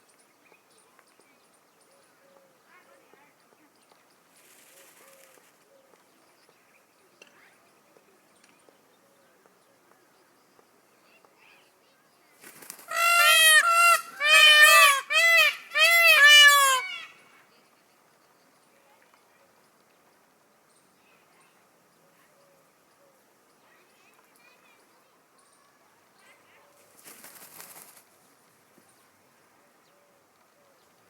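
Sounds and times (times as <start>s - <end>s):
peacock calling: 12.6s - 17.3s.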